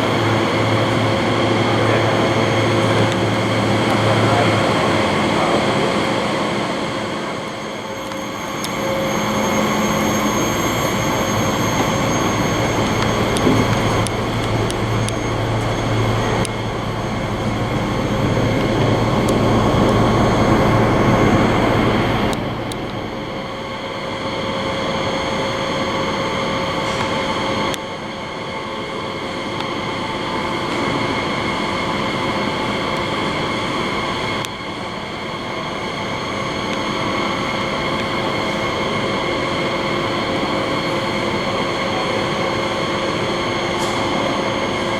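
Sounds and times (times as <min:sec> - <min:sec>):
electric hum and whine: 0:00.0 - 0:44.9
train rumble: 0:00.0 - 0:44.9.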